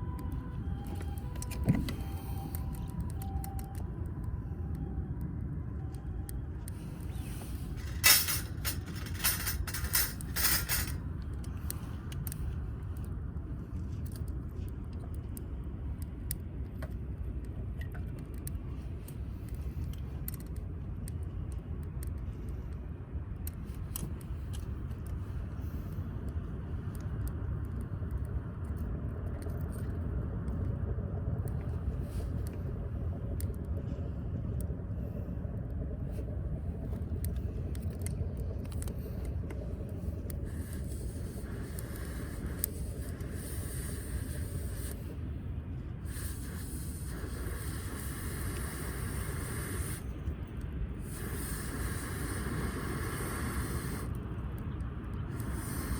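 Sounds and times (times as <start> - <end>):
low outdoor rumble: 0.0 - 55.9.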